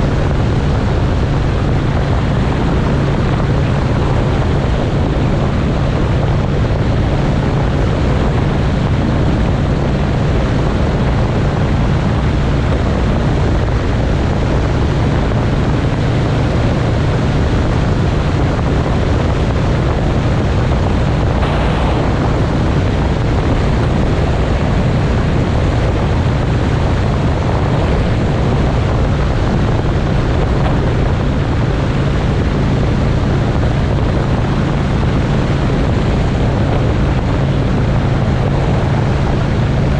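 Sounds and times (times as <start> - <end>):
motorcycle engine cruising: 0.0 - 39.9
wind on microphone: 0.0 - 39.9
burst of noise: 20.8 - 31.7.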